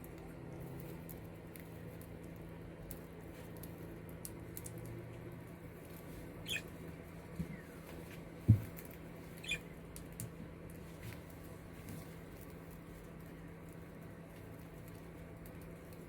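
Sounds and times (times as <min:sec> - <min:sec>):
budgerigar chirping: 0:06.4 - 0:06.6, 0:09.4 - 0:09.6.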